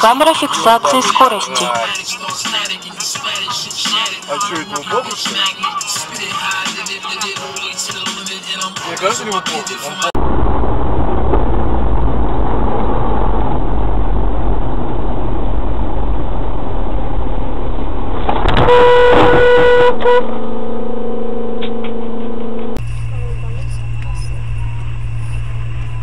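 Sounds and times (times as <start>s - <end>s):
road and engine noise: 0.0s - 26.0s
car horn: 18.4s - 23.6s
low steady horn note: 18.6s - 24.4s.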